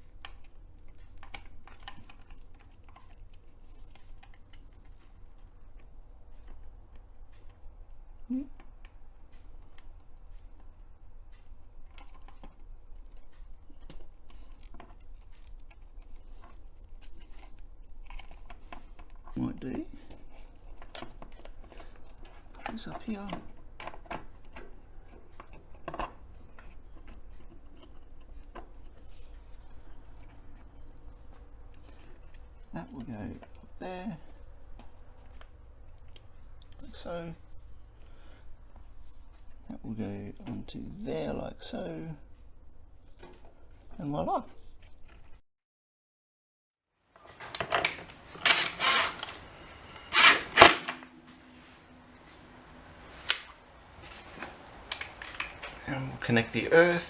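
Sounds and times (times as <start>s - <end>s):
low steady hum: 0.0s - 45.4s, 47.2s - 57.0s
wiring rustling: 0.0s - 45.4s, 47.1s - 57.0s
plastic connectors clicking and rattling: 0.1s - 7.6s, 11.3s - 37.0s.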